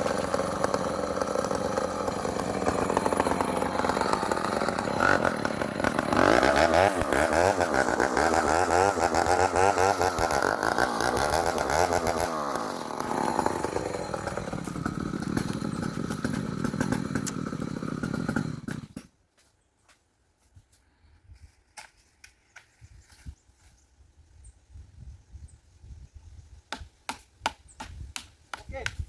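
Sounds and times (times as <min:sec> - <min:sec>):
chainsaw running at high revs: 0:00.0 - 0:19.1.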